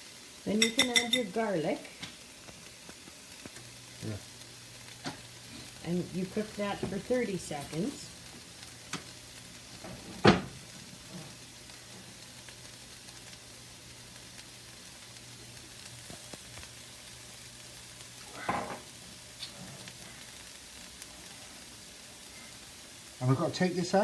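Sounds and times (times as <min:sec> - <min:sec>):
onions sizzling in oil: 0:00.0 - 0:24.0
knock against pan: 0:10.2 - 0:10.5.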